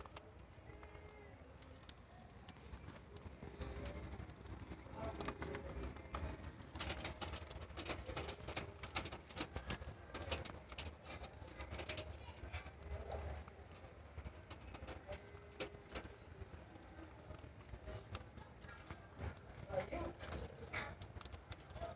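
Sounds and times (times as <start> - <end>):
claws and beaks clicking on bars: 0.0 - 21.9.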